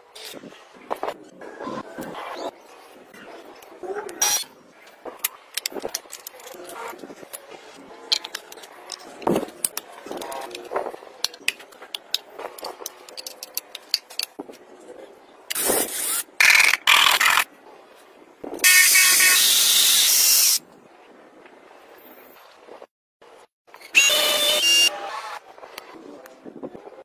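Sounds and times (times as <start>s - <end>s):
tools clicking and clinking: 8.1s - 14.4s.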